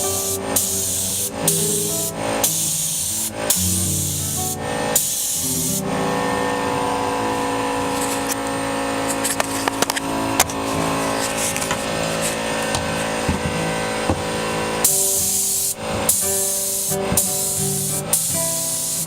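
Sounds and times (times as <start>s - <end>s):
spray paint hissing: 0.0s - 6.0s, 14.8s - 19.0s
held musical tones: 0.0s - 18.6s.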